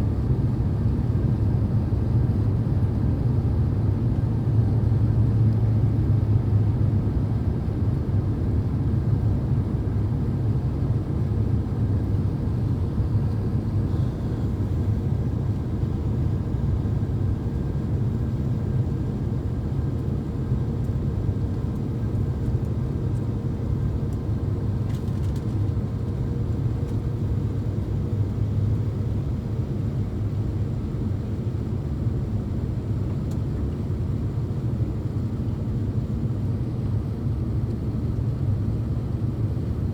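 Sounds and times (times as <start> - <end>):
airliner cabin rumble: 11.6 - 19.3, 21.4 - 39.9.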